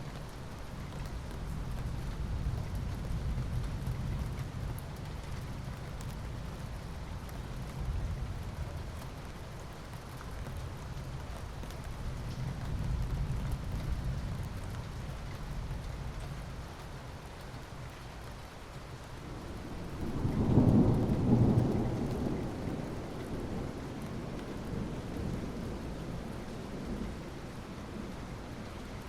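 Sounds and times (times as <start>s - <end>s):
rain falling: 0.0s - 29.0s
distant thunder rumble: 19.3s - 28.5s.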